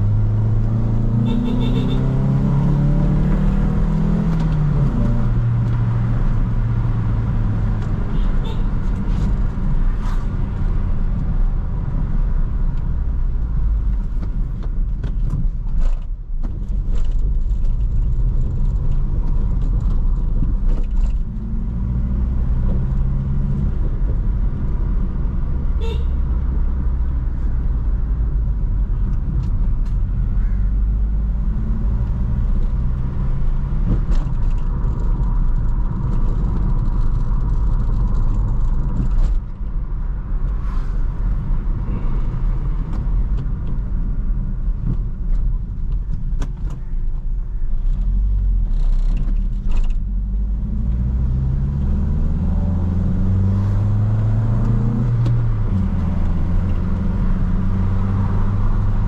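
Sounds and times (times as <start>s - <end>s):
car engine driving: 0.0s - 59.0s
road noise: 0.0s - 59.0s.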